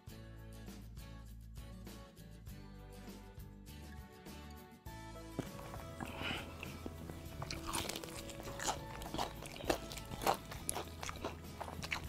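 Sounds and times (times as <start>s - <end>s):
crunching fried chicken: 5.4s - 12.0s.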